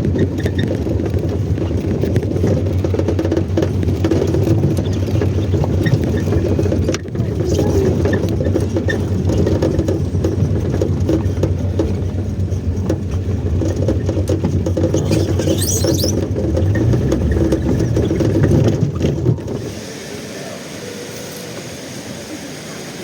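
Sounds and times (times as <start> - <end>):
car engine and road hum: 0.0 - 22.6.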